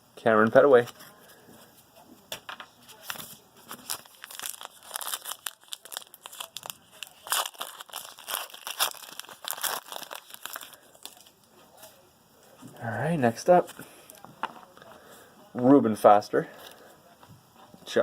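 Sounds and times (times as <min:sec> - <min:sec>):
foil wrapper tearing and crinkling: 0:03.0 - 0:11.3.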